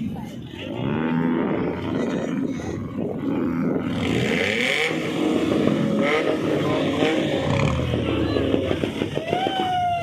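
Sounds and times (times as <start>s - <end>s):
car engines revving: 0.0s - 10.0s.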